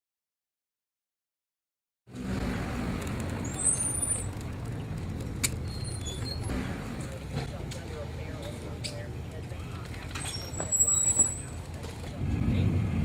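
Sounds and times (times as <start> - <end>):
vehicle low rumble: 2.1 - 13.0
high squeaks: 5.6 - 6.6, 10.1 - 11.6.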